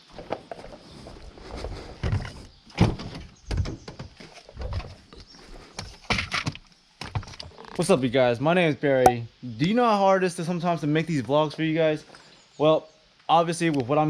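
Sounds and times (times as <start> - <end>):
irregular knocks and thuds: 2.0 - 5.0.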